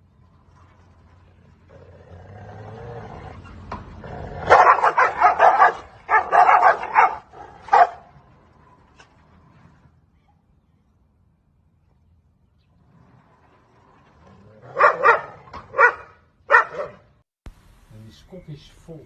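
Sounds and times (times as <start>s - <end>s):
dog growling low: 1.6s - 4.5s, 12.8s - 15.4s
dog barking: 4.4s - 8.1s, 14.7s - 17.1s.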